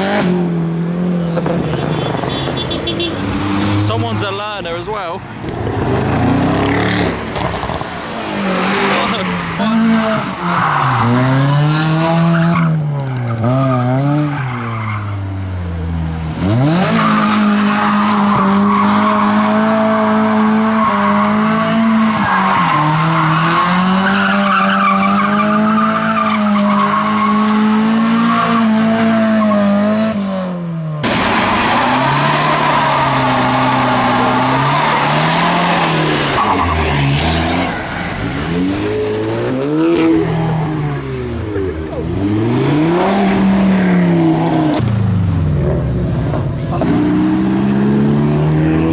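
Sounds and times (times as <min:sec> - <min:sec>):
car engine at high revs: 0:03.0 - 0:48.9
engine revving up and down: 0:31.0 - 0:48.9.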